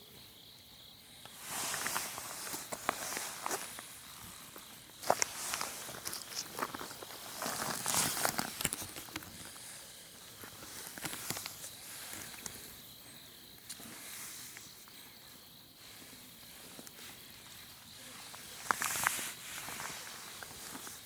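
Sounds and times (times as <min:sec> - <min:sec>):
high hiss of outdoor ambience: 0:00.0 - 0:21.0
footsteps crunching on path: 0:01.5 - 0:09.6.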